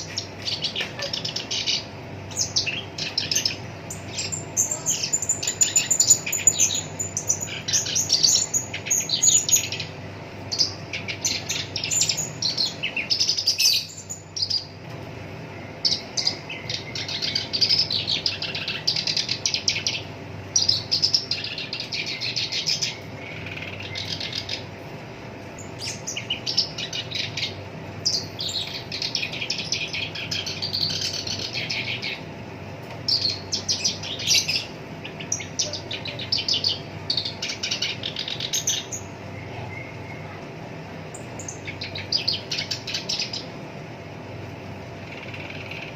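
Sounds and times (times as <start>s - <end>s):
warbler singing harsh chattering song: 0.0s - 45.9s.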